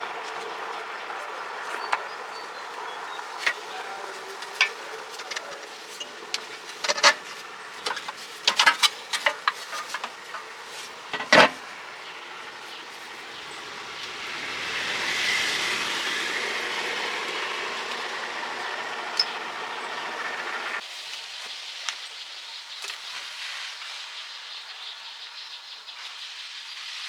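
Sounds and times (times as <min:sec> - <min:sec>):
sharp clicks and knocks: 0:04.4 - 0:10.5, 0:11.1 - 0:11.6.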